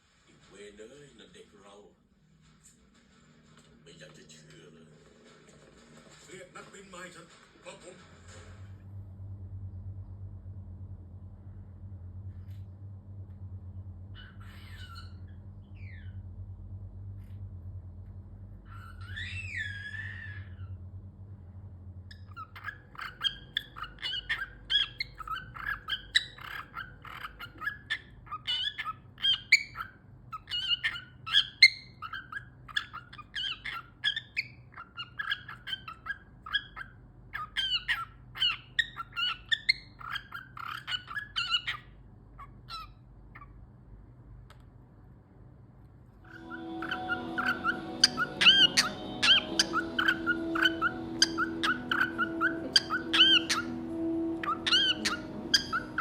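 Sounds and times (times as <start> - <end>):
steady low tones: 8.6 - 14.2, 46.3 - 56.0
cockatiel chirping: 14.2 - 16.2, 18.7 - 20.7, 22.1 - 43.6, 46.3 - 56.0.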